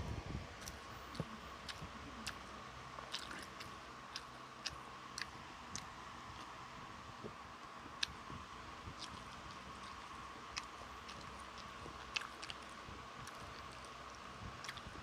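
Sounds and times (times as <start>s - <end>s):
person chewing food: 0.5s - 15.0s
wet mouth clicks: 0.6s - 6.5s, 14.6s - 15.0s.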